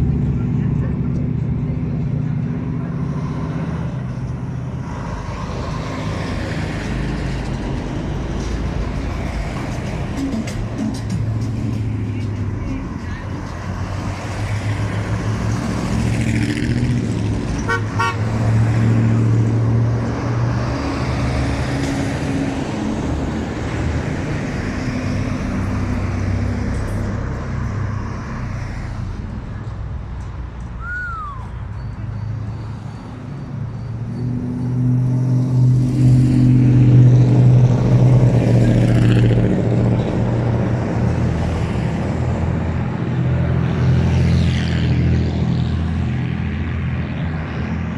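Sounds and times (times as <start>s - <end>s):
running traffic: 0.0s - 47.9s
truck horns blasting: 17.6s - 18.6s
falling whistle: 30.8s - 31.9s.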